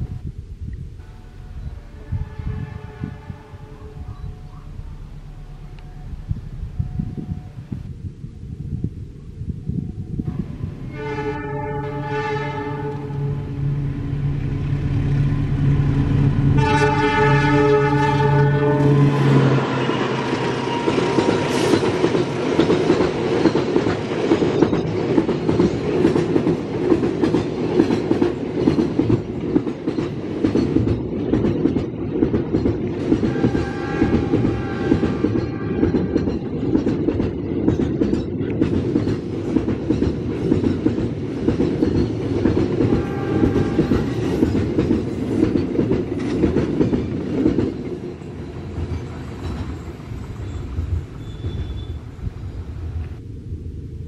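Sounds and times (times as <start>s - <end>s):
train wheels rumbling: 0.0s - 54.0s
wheels clacking over rail joints: 19.7s - 51.8s.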